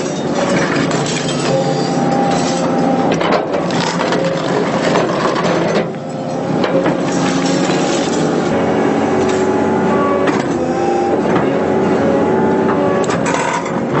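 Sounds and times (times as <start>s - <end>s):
excavator engine and hydraulic drone: 0.0s - 14.0s
concrete cracking: 3.2s - 5.9s.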